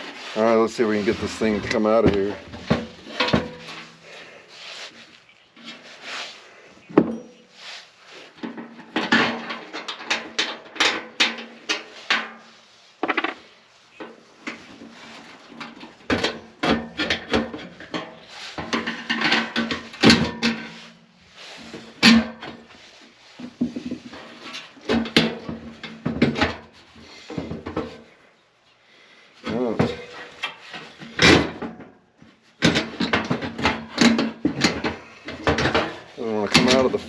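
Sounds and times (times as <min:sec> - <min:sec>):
metal clanking and scraping: 0:00.0 - 0:04.4, 0:08.3 - 0:13.4, 0:14.0 - 0:22.8, 0:32.6 - 0:37.0.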